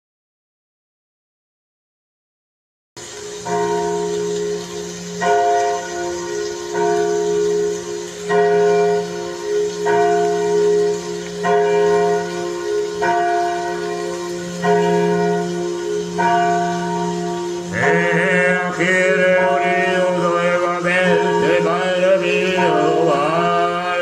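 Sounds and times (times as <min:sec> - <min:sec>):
church bell tolling: 0:03.1 - 0:24.0
person chanting: 0:16.2 - 0:24.0.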